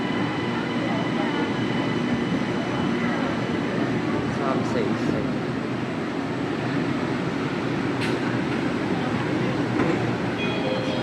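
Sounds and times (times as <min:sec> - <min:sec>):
train cabin rumble: 0:07.8 - 0:11.0.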